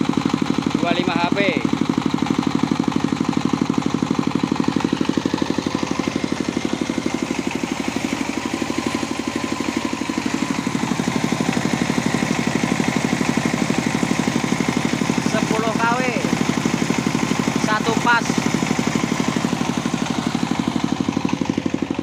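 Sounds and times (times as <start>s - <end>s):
diesel engine chugging: 0.0s - 22.0s.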